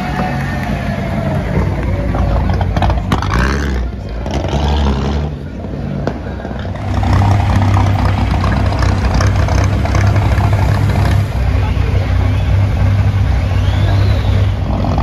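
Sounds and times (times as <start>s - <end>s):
racing car engine rumbling: 0.0s - 15.0s.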